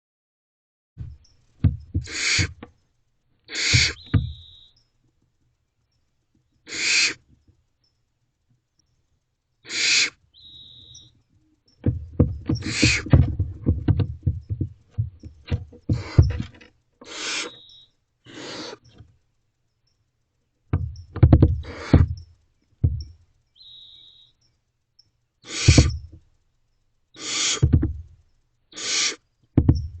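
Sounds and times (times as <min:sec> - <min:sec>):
scuffling and knocking: 0:01.0 - 0:02.7, 0:03.7 - 0:04.4, 0:11.8 - 0:16.7, 0:20.7 - 0:22.2, 0:22.8 - 0:23.1, 0:27.6 - 0:28.2, 0:29.6 - 0:30.0
owlets hissing screech calls: 0:02.0 - 0:02.6, 0:03.5 - 0:04.8, 0:06.7 - 0:07.2, 0:09.6 - 0:11.1, 0:12.6 - 0:13.1, 0:15.9 - 0:16.4, 0:17.0 - 0:19.0, 0:21.6 - 0:22.2, 0:23.6 - 0:24.4, 0:25.4 - 0:26.1, 0:27.1 - 0:27.7, 0:28.7 - 0:29.3.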